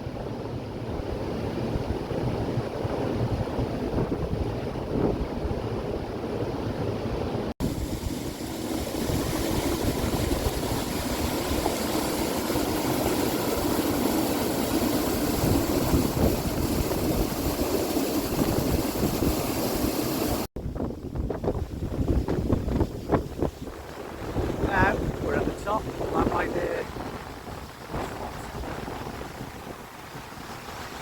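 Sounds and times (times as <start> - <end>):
wind buffeting microphone: 0.0 - 19.7, 20.3 - 31.0
waterfall rushing: 7.6 - 20.5.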